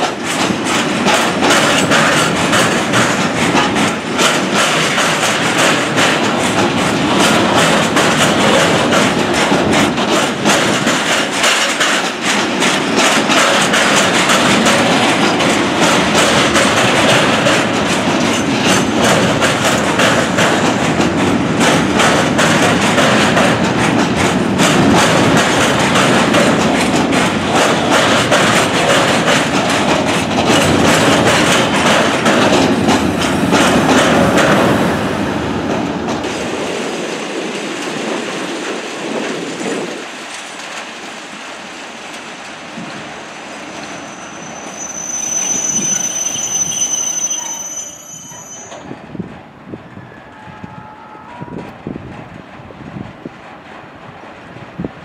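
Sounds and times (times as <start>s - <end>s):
train wheels clicking over rail joints: 0.0s - 49.8s, 51.5s - 55.0s.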